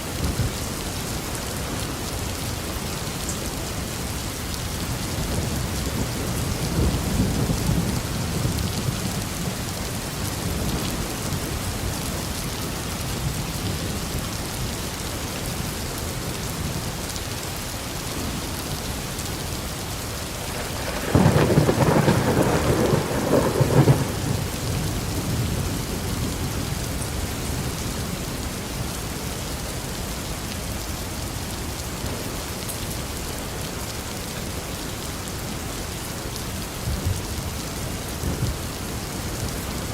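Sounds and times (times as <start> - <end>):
steady rainfall: 0.0 - 39.9
thunder rumbling: 20.5 - 27.8
sharp thunder clap: 20.8 - 24.4.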